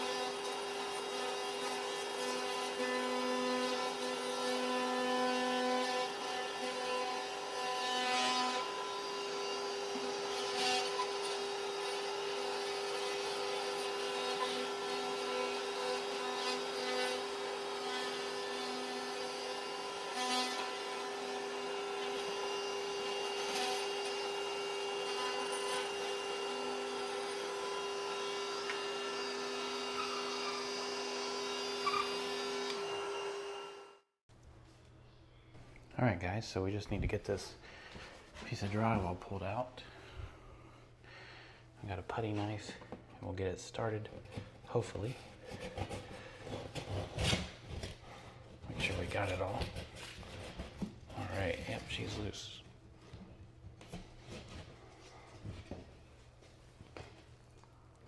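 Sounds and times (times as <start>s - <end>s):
power tool cutting drywall: 0.0s - 34.2s
rough scraping: 44.4s - 52.6s.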